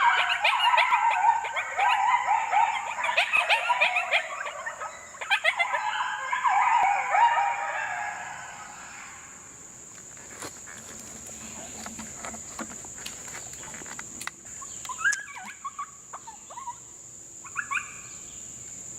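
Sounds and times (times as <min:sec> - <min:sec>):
coyotes yipping and howling: 0:00.0 - 0:09.6, 0:14.5 - 0:18.3.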